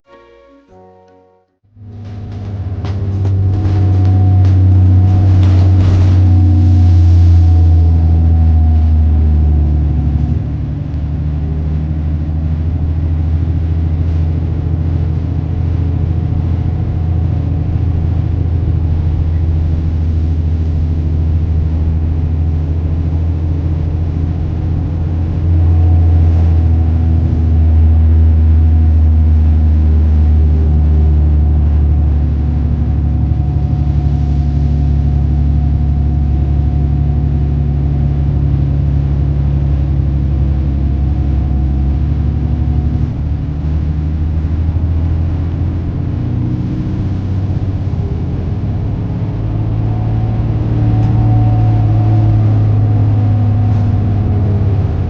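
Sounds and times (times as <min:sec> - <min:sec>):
low engine drone: 0:00.0 - 0:55.0.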